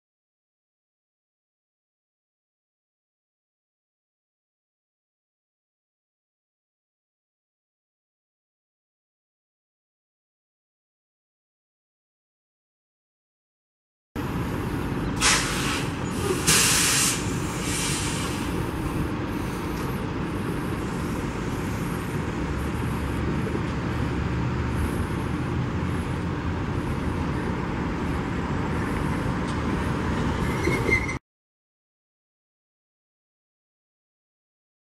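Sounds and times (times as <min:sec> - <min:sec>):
freight train wheels rumbling: 0:14.2 - 0:31.2
short hissing bursts: 0:15.2 - 0:18.6
high wheel squeal: 0:30.2 - 0:31.2.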